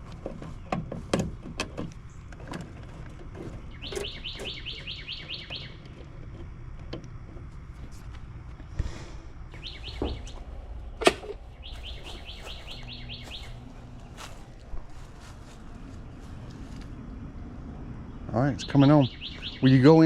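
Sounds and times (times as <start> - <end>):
sharp clicks and knocks: 0.0 - 8.2
bird trilling: 3.7 - 5.8, 9.5 - 14.6, 18.2 - 20.0.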